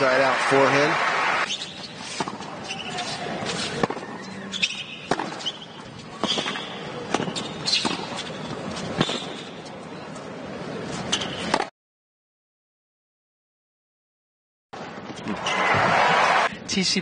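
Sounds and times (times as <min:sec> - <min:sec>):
tennis ball hits and bounces: 0:01.4 - 0:09.5, 0:11.0 - 0:11.7
shoes squeaking on court: 0:01.4 - 0:11.7.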